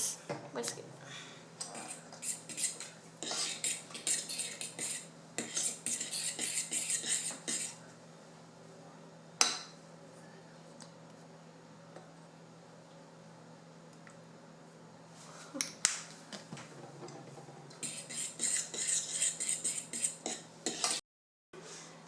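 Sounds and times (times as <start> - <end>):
whisk clinking against bowl: 17.8 - 21.0.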